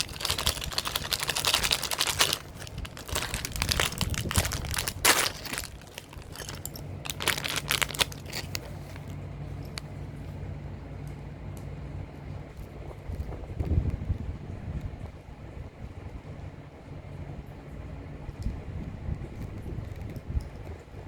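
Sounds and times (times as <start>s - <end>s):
packaging crinkling and rustling: 0.0s - 9.9s.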